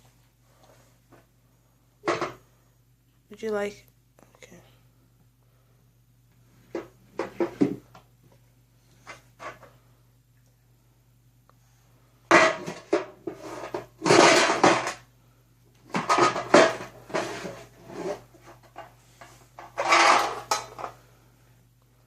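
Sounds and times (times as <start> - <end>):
small hard objects clattering: 19.7 - 20.9.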